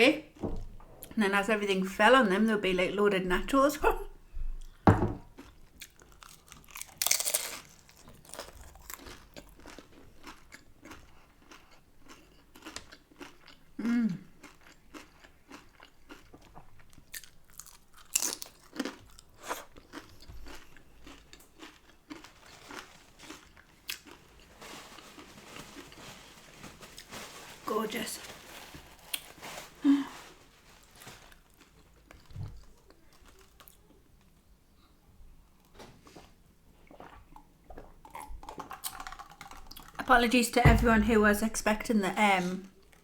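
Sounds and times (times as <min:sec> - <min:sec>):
close-up chewing: 0:04.6 - 0:26.2, 0:36.8 - 0:40.0
crunchy taco bites: 0:05.4 - 0:24.5.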